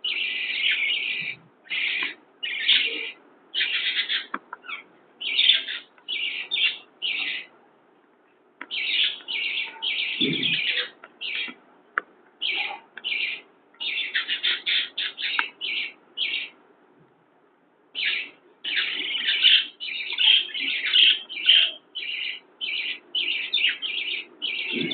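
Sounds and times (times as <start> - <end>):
parrots chirping: 0.0 - 7.6, 8.6 - 11.6, 12.4 - 16.6, 17.9 - 24.9.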